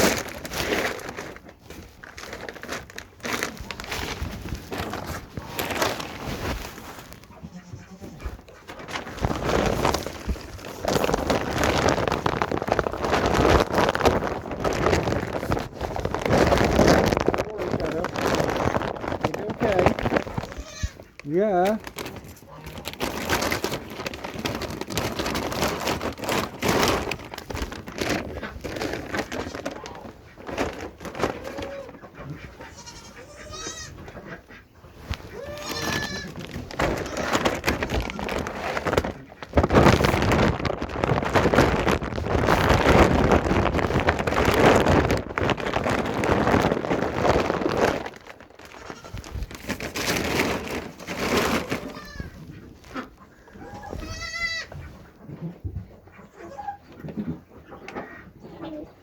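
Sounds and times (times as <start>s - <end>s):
loud rustling: 0.0s - 7.3s, 8.1s - 31.7s, 35.0s - 53.0s
goats bleating: 32.6s - 34.0s, 35.4s - 37.4s, 53.9s - 54.7s.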